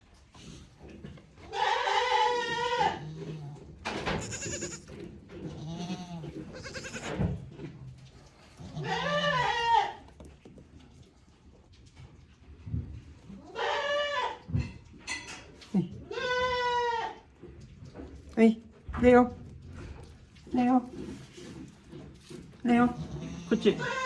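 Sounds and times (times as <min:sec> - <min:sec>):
goats bleating: 0:01.4 - 0:07.2, 0:08.6 - 0:10.0, 0:13.4 - 0:14.4, 0:16.1 - 0:17.2, 0:22.8 - 0:24.0.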